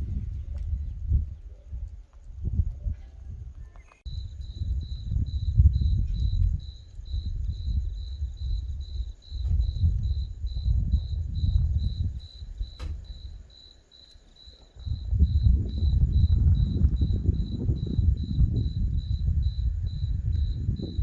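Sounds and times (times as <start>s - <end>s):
rumble of thunder: 0.0s - 3.5s, 4.1s - 13.5s, 14.8s - 21.0s
cricket chirping: 0.0s - 21.0s
sharp click: 12.7s - 13.2s.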